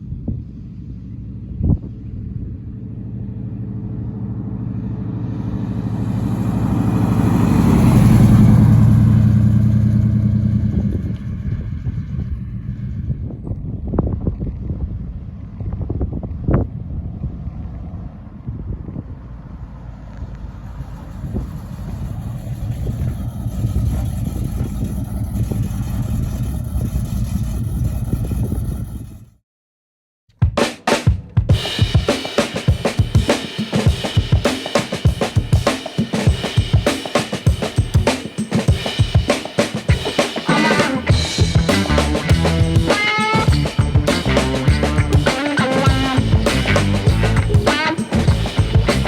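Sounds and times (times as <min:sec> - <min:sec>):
car engine passing by: 0:00.7 - 0:13.6, 0:15.2 - 0:29.3, 0:38.7 - 0:49.0.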